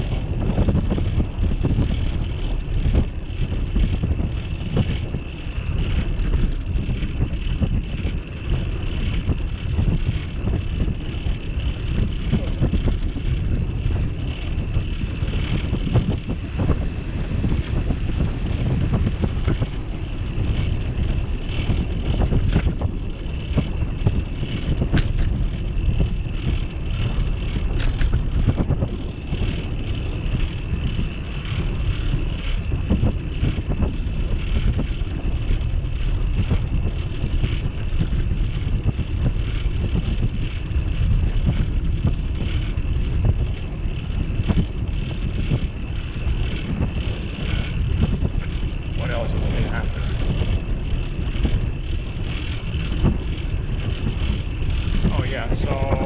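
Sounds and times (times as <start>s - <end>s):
bicycle ride rumble: 0.0s - 56.0s
wind buffeting microphone: 0.0s - 56.0s.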